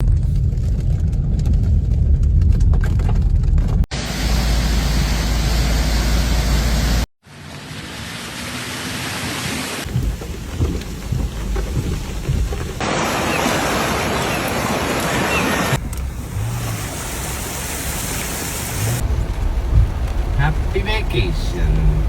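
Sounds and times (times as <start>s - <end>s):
heavy rain: 4.0s - 22.0s
floodwater rushing: 7.3s - 22.0s.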